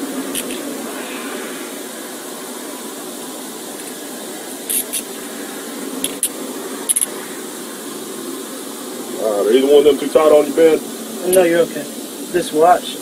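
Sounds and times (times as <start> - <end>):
car ventilation hiss: 0.0 - 13.0
handcuffs ratcheting shut: 4.7 - 5.0.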